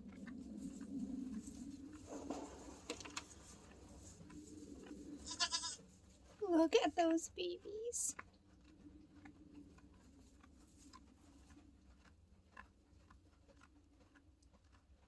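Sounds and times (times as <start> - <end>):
low steady hum: 0.0 - 13.0
faint ticks and rustles: 0.0 - 15.0.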